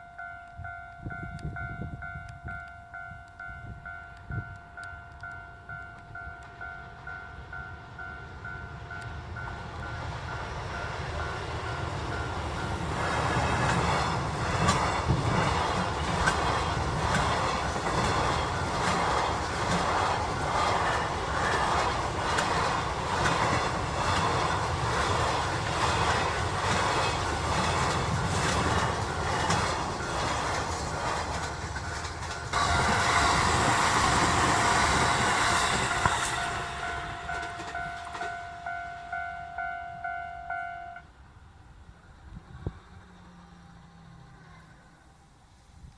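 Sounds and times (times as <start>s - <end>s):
steady high tone: 0.0s - 41.1s
train wheels clattering: 9.9s - 39.0s.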